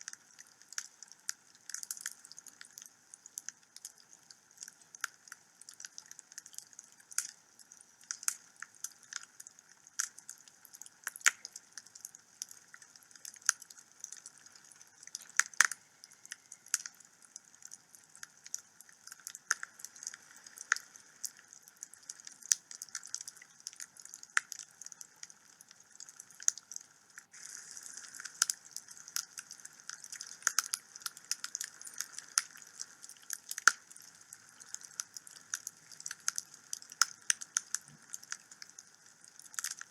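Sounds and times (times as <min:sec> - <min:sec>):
wood fire crackling and popping: 0:00.0 - 0:39.9
fire hissing: 0:27.3 - 0:33.0.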